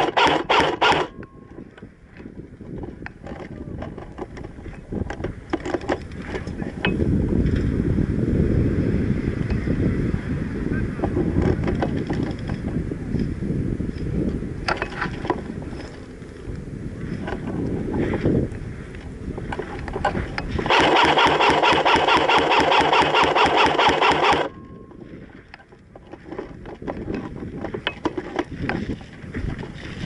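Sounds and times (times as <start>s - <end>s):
airsoft gun full-auto burst: 0.0s - 1.1s, 20.6s - 24.5s
wind noise on microphone: 0.0s - 30.0s.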